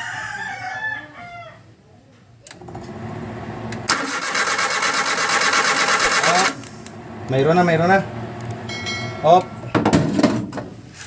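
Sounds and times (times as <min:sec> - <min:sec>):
car engine cranking: 0:02.5 - 0:10.2.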